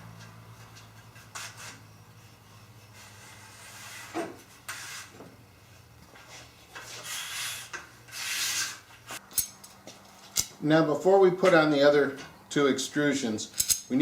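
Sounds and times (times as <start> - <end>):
sharp hardware clicks: 13.5 - 13.9.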